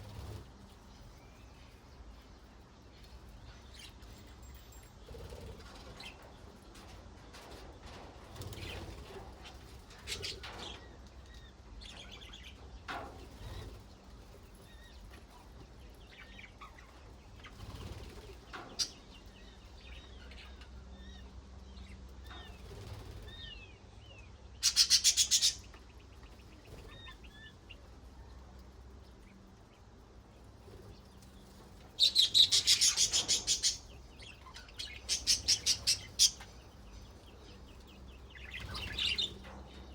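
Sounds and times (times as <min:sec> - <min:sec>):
budgerigars chattering: 0:24.6 - 0:25.8, 0:32.0 - 0:36.9.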